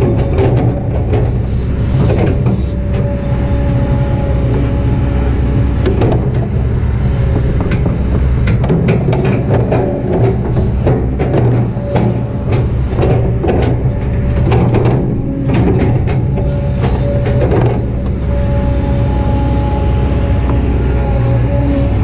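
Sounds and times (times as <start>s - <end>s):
knocks and clanks: 0.0s - 4.7s, 5.6s - 6.7s, 7.4s - 18.5s
excavator diesel engine drone: 0.0s - 22.0s.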